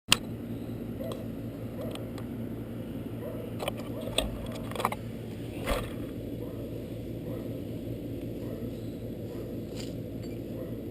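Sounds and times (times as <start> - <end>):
low steady hum: 0.1 - 10.9.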